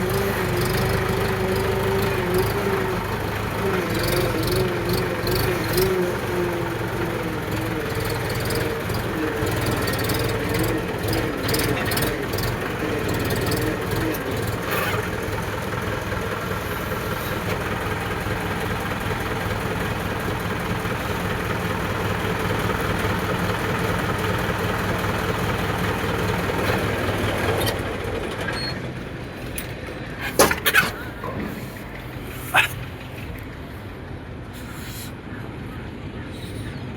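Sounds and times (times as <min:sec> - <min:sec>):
wavering drone: 0:00.0 - 0:15.2
tractor engine running: 0:00.0 - 0:36.6.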